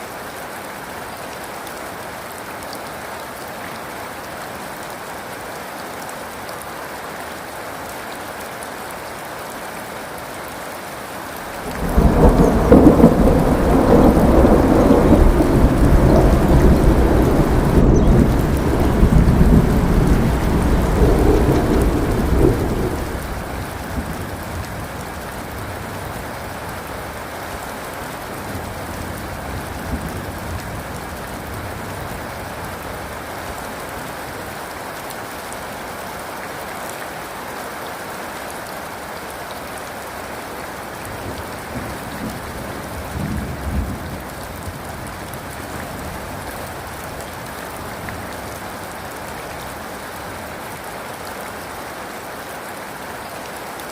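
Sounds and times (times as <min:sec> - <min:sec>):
heavy rain falling: 0:00.0 - 0:53.9
thunder rumbling: 0:11.6 - 0:25.0.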